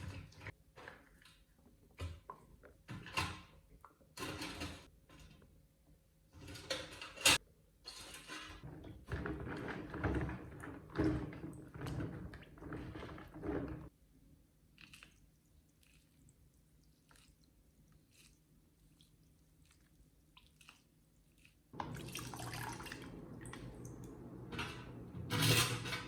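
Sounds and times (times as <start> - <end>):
metal scraping: 24.4 - 26.0.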